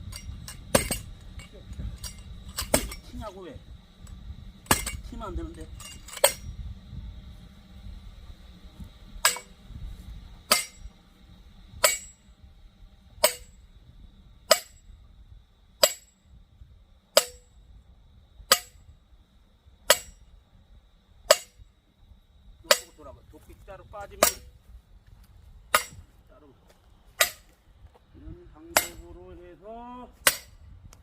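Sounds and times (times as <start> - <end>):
hammer striking steel: 0.1 - 3.1, 4.7 - 5.1, 5.8 - 6.5, 9.2 - 9.5, 10.5 - 10.9, 11.8 - 12.2, 13.2 - 13.6, 14.5 - 14.8, 15.8 - 16.2, 17.2 - 17.5, 18.5 - 18.8, 19.9 - 20.2, 21.3 - 21.6, 22.7 - 23.0, 24.2 - 24.5, 25.7 - 26.0, 27.2 - 27.5, 28.7 - 29.1, 30.2 - 30.6.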